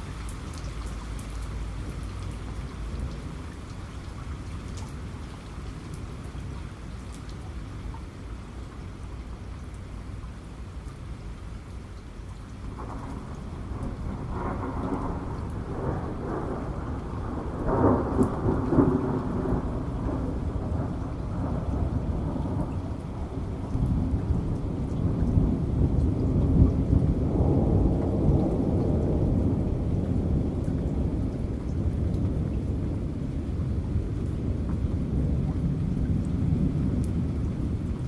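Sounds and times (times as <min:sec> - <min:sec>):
heavy rain: 0:00.0 - 0:38.0
rolling thunder: 0:12.7 - 0:38.0.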